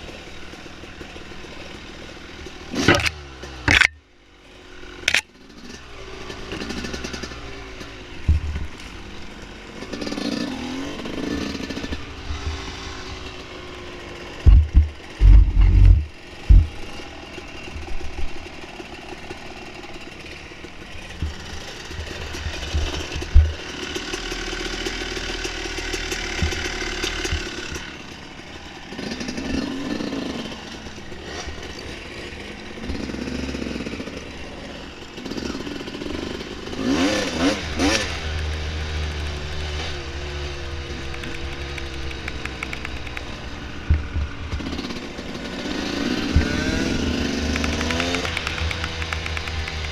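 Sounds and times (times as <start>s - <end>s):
dirt bike engine revving: 0.0s - 4.0s, 4.7s - 49.9s
heavy low thumps: 14.5s - 16.8s.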